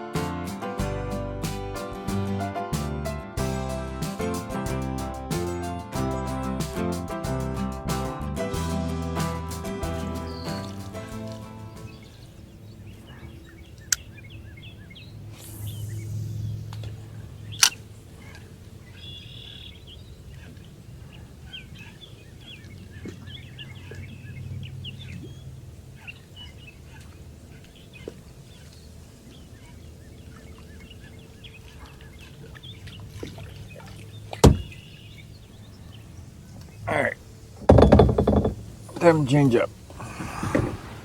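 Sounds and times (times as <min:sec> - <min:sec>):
small birds chirping: 0:10.2 - 0:10.8, 0:11.7 - 0:38.0
loud hard knock: 0:34.4 - 0:34.8, 0:37.7 - 0:38.6.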